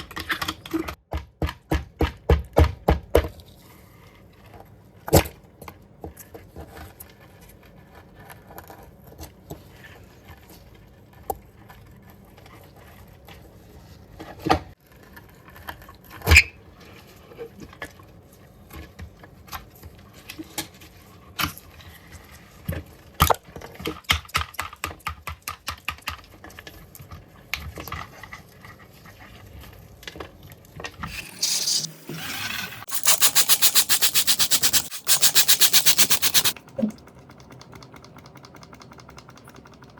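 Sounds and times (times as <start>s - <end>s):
loud fast rattle: 31.1s - 36.6s.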